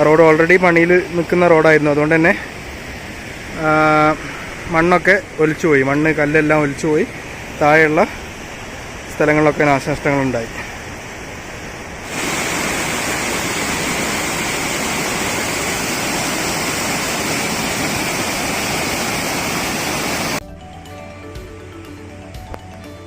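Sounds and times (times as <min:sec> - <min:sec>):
rushing river water: 0:00.0 - 0:20.4
background music with beat: 0:20.4 - 0:23.0.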